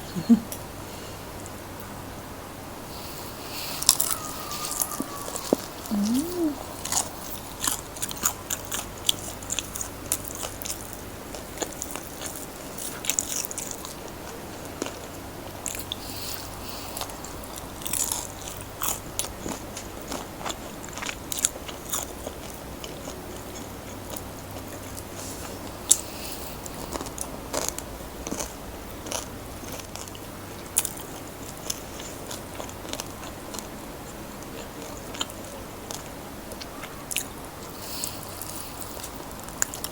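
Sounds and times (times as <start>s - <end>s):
chewing: 2.9s - 39.9s
crunching fried chicken: 2.9s - 39.9s.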